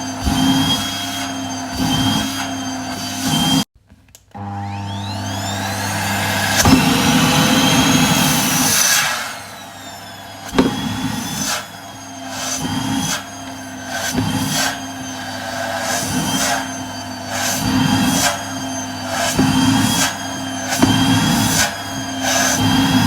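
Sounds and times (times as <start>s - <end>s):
vacuum cleaner motor whine: 0.0s - 3.7s, 4.3s - 23.0s
nozzle sucking air: 6.1s - 23.0s.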